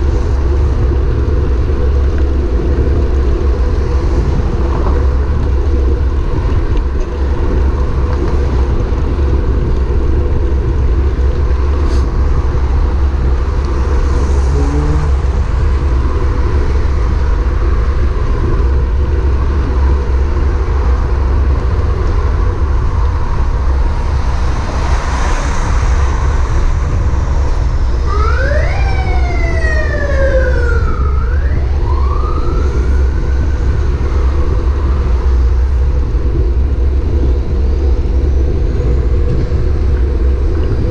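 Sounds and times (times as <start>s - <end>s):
bicycle road rumble: 0.0s - 40.9s
wind: 0.0s - 40.9s
siren wailing: 27.9s - 34.7s.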